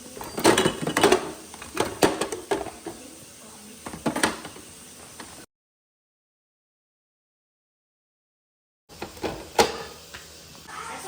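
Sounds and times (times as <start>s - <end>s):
items knocking in refrigerator: 0.2s - 3.0s.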